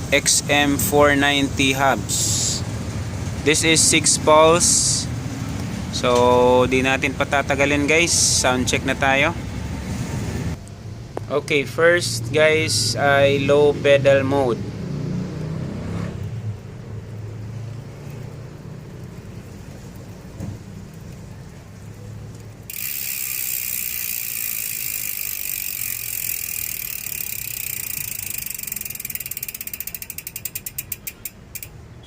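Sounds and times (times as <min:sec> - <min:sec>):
wheel turning rumble: 0:16.8 - 0:31.8
hub pawls ratcheting buzz: 0:22.7 - 0:32.0.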